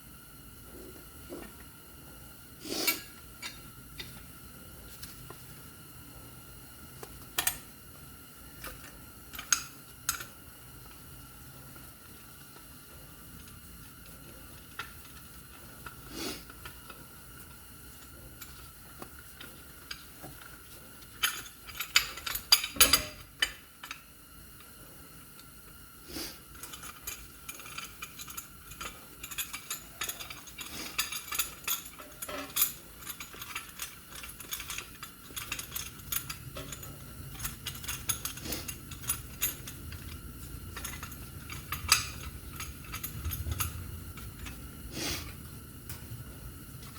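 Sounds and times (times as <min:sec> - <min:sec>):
metal tools clinking: 0:26.7 - 0:44.6.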